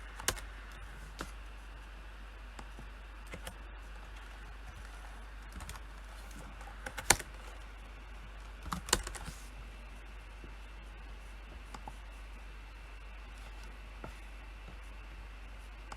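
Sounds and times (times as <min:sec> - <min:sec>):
computer keyboard keystrokes: 0:00.1 - 0:00.4, 0:03.3 - 0:07.6, 0:08.5 - 0:09.4.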